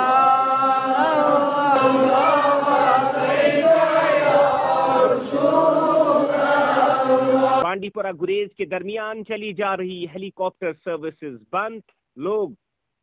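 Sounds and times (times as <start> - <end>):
devotional chanting: 0.0 - 7.7.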